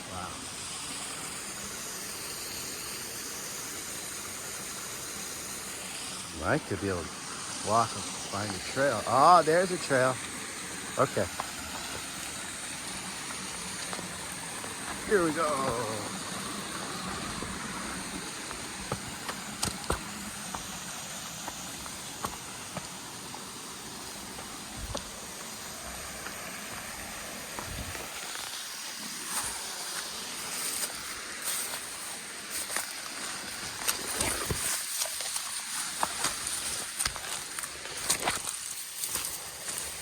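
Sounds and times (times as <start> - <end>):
running stream water: 0.0 - 40.0
footsteps on forest trail: 7.1 - 40.0
brushing through vegetation: 27.6 - 40.0.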